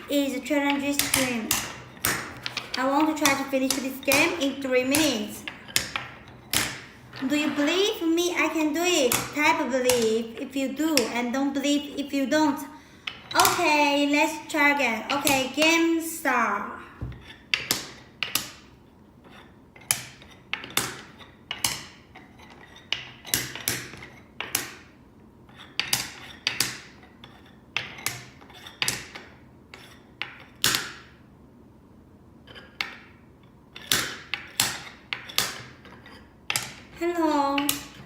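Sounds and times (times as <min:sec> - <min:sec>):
wooden beads clacking: 0:00.0 - 0:07.7.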